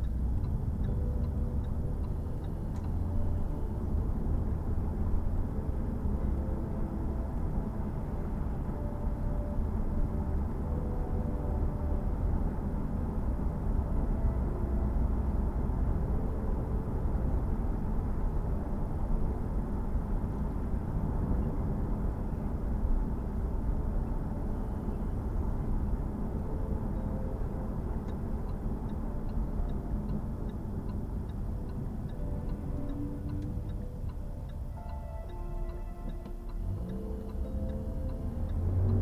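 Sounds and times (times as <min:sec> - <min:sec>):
car engine low rumble: 0:00.0 - 0:39.0
light regular ticking: 0:27.7 - 0:39.0.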